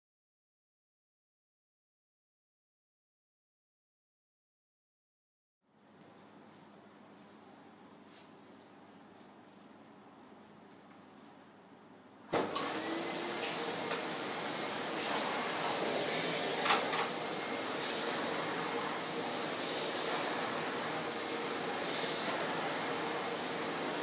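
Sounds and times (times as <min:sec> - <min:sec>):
vacuum cleaner motor running: 0:12.3 - 0:24.0.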